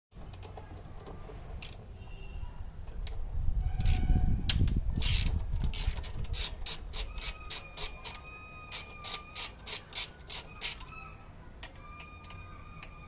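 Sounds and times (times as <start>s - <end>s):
mechanical ratchet clicking: 4.6s - 10.9s.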